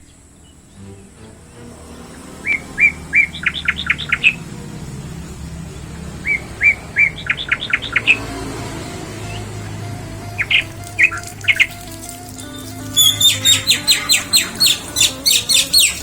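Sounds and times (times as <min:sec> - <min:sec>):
songbird singing whistled notes: 0:02.4 - 0:16.0.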